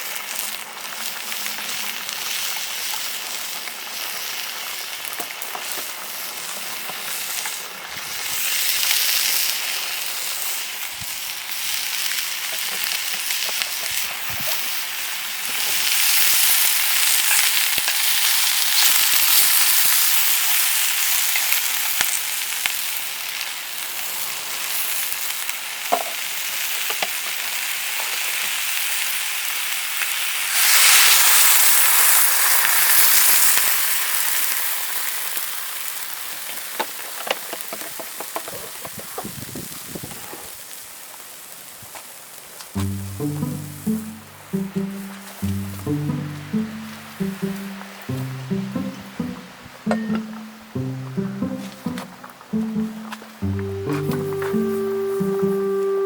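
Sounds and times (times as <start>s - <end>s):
food sizzling in a pan: 0.0s - 38.4s.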